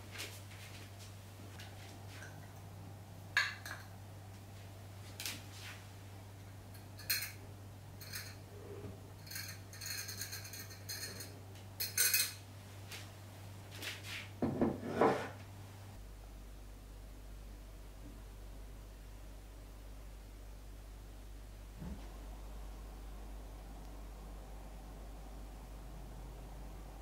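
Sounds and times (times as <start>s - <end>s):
glass jar and bowl clinking: 8.0s - 8.4s, 9.2s - 12.4s
glass ringing rattle: 8.0s - 8.4s, 9.2s - 12.4s.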